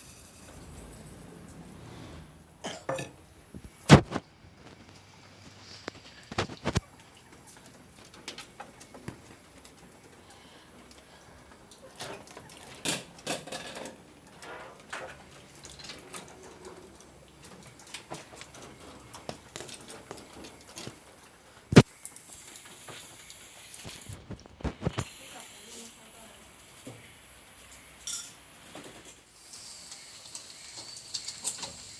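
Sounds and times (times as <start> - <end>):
chickens scuffling: 3.4 - 25.1.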